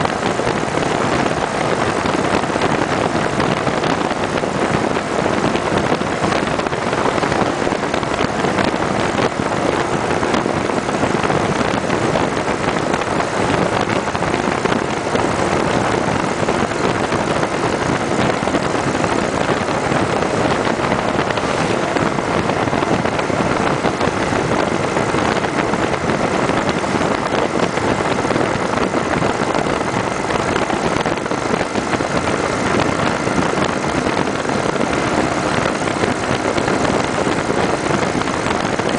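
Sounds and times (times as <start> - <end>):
motorcycle engine at speed: 0.0 - 38.9
road noise: 0.0 - 38.9
wind rush: 0.0 - 38.9.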